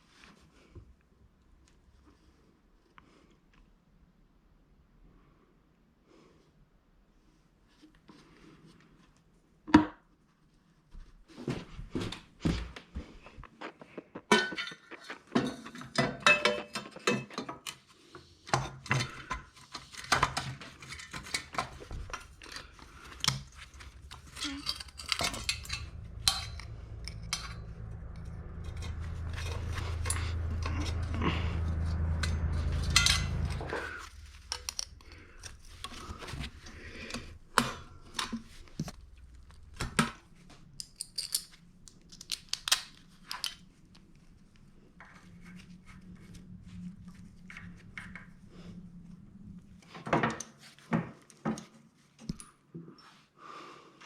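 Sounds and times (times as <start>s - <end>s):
low steady hum: 19.0s - 50.2s
metal parts clinking: 20.8s - 31.1s, 32.1s - 36.4s, 40.8s - 43.6s.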